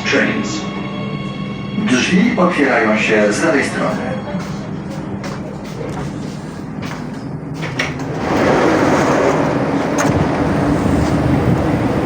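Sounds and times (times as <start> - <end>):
train wheels rumbling: 1.2 - 12.0
low motor hum: 7.6 - 12.0.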